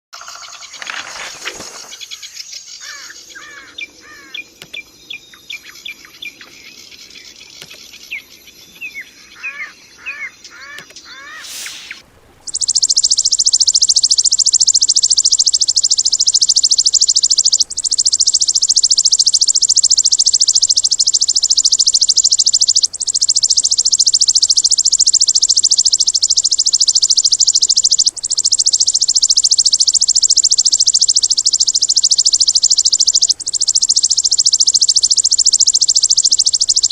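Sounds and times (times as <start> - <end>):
bird chirps and whistles: 7.6 - 36.9
rapid high buzzing trill: 11.4 - 36.9.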